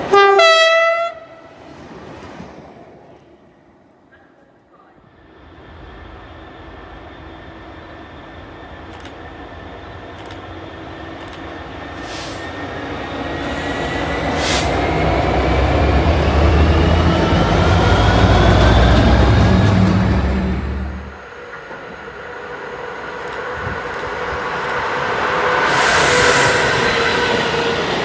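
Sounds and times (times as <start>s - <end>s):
rising train whine: 0.0s - 28.0s
train rumble: 0.0s - 28.0s
sharp clicks: 8.9s - 9.2s, 10.1s - 10.5s, 11.1s - 11.6s.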